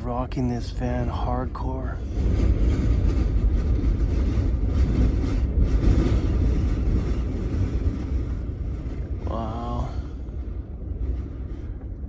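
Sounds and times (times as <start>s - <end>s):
wind gusts buffeting a van: 0.0s - 12.0s.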